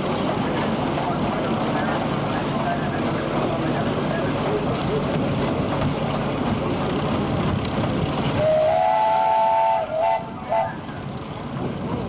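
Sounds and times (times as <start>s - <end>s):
steam whistle long blast: 8.4s - 10.7s.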